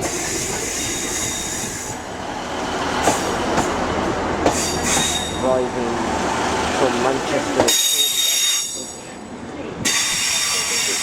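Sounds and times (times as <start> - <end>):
train rolling noise: 0.0 - 11.0
wheel squeal: 4.6 - 5.4.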